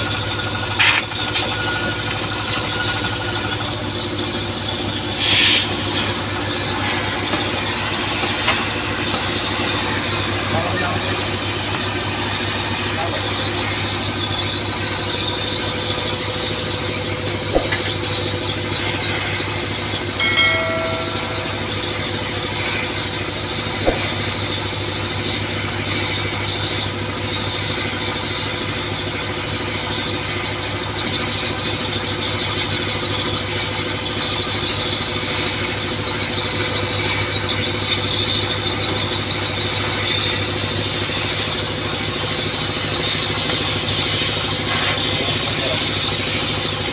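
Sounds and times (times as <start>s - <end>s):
high-pitched whine: 0.1s - 46.9s
machinery low hum: 1.4s - 34.8s.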